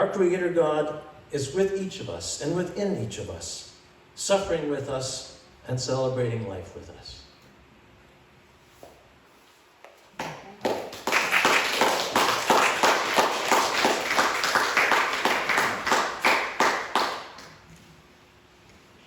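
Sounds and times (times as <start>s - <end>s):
congregation applauding: 10.2s - 17.7s.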